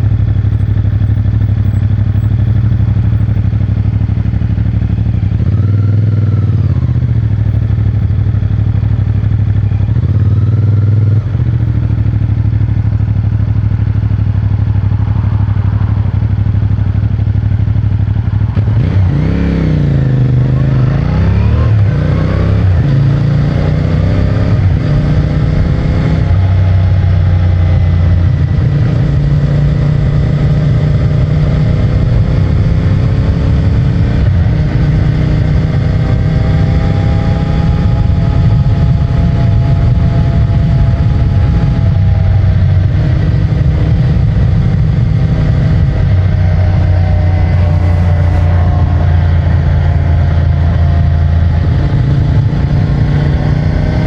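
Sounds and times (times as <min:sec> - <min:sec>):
motorcycle engine while riding: 0:00.0 - 0:54.0.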